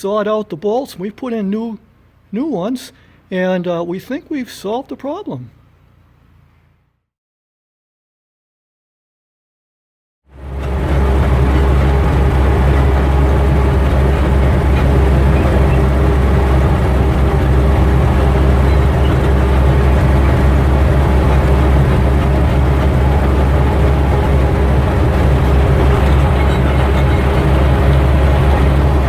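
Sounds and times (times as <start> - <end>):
truck engine humming: 10.4 - 29.0.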